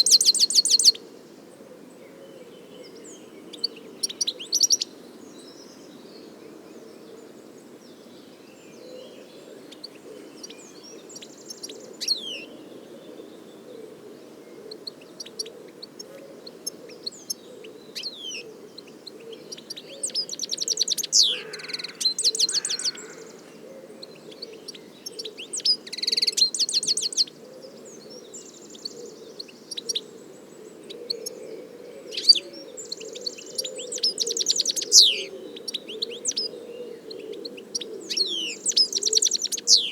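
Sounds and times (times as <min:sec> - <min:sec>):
finch twittering and trilling: 0:32.1 - 0:36.5, 0:37.7 - 0:39.9.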